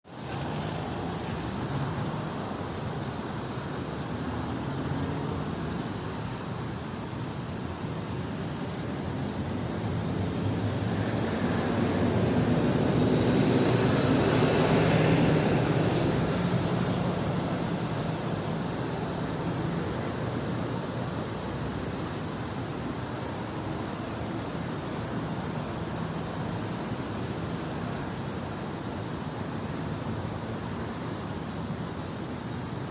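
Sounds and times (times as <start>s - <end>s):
vehicle passing hum: 9.3s - 20.6s.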